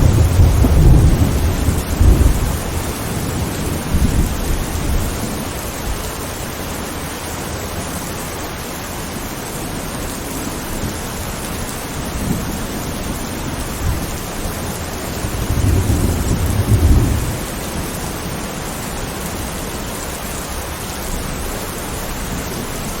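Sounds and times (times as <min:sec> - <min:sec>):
thunder rumbling: 0:00.0 - 0:06.2, 0:10.8 - 0:20.2
steady rain: 0:00.0 - 0:23.0.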